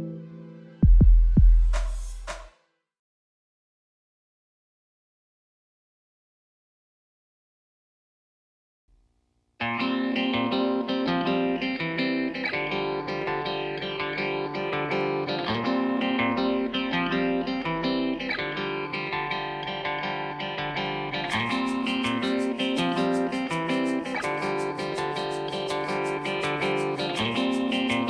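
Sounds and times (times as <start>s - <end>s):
guitar background music: 0.0s - 0.8s, 9.6s - 28.0s
bright ticking beat: 21.3s - 28.0s.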